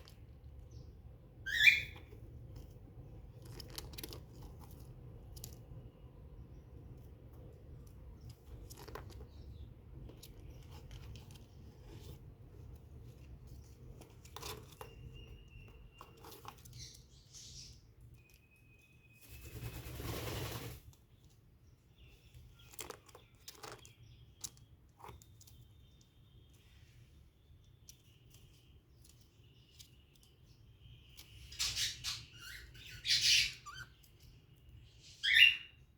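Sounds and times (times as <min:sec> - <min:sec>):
bird scratching in nest bedding: 0:19.4 - 0:21.0.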